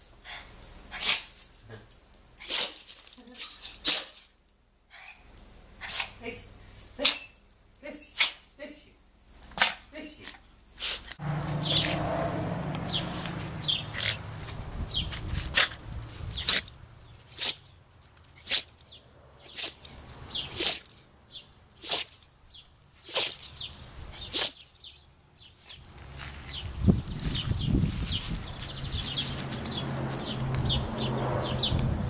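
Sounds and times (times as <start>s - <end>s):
small dog sneezing: 0.3s - 1.8s, 5.8s - 6.2s, 8.1s - 8.5s, 9.6s - 9.9s, 20.5s - 20.8s, 21.8s - 22.2s, 23.0s - 23.4s.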